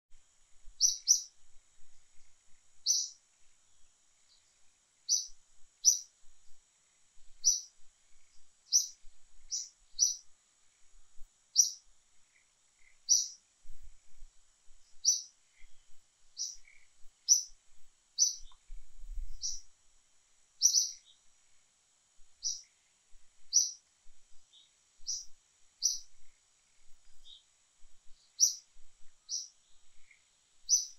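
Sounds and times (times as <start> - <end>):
faint high-pitched hiss: 0.0 - 30.9
bird chirping: 0.8 - 1.4, 2.1 - 6.6, 7.4 - 10.3, 11.5 - 13.8, 14.8 - 17.6, 18.2 - 19.7, 20.6 - 21.3, 22.4 - 22.8, 23.4 - 30.9.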